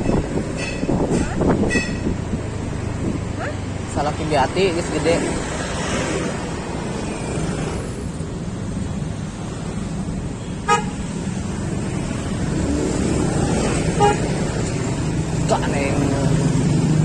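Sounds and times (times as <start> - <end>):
vehicle horn beeps: 0.0 - 2.1, 10.4 - 11.0, 14.0 - 14.2
wind rumble: 0.0 - 10.4
road traffic: 0.0 - 17.0.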